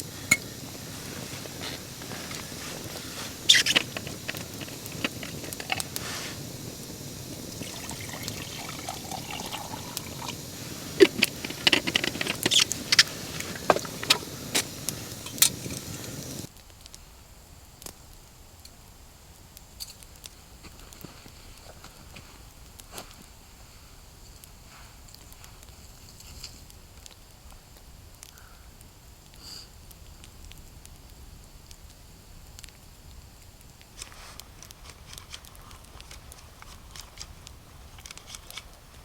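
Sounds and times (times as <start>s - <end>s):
liquid pouring and trickling: 1.8s - 16.5s.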